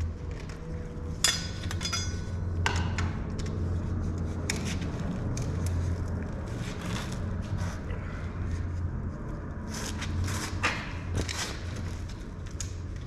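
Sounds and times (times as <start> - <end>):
steady low hum: 0.0 - 13.0
metal tools clinking on metal: 1.2 - 2.3.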